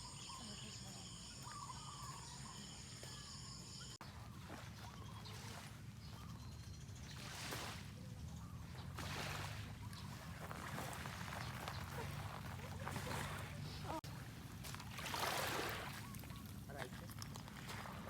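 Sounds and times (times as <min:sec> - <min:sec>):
insects chorus: 0:00.0 - 0:04.0.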